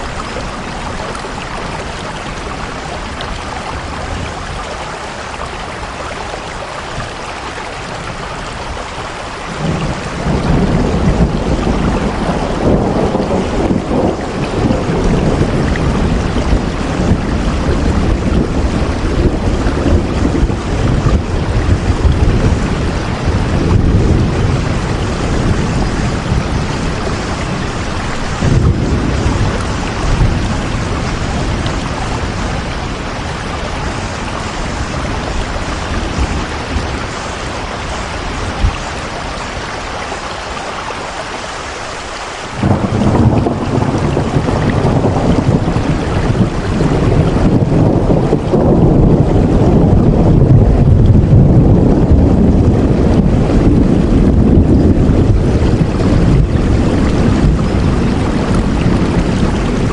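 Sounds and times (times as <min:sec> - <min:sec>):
heavy rain falling: 0:00.0 - 0:59.9
deep rumble: 0:09.6 - 0:37.1, 0:42.6 - 0:59.9.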